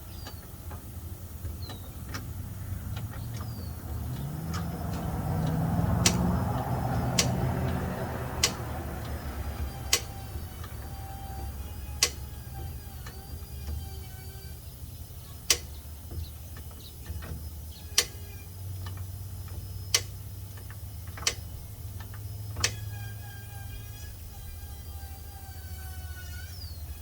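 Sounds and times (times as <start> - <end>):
sharp clicks: 0.2 - 13.8, 15.4 - 17.4, 18.0 - 18.2, 18.8 - 22.9.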